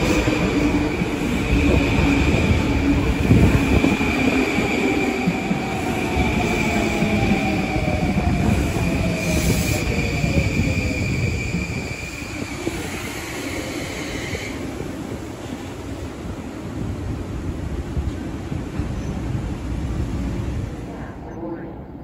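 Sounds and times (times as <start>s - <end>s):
train high whine: 0.0s - 16.0s
train rail rumble: 0.0s - 22.0s.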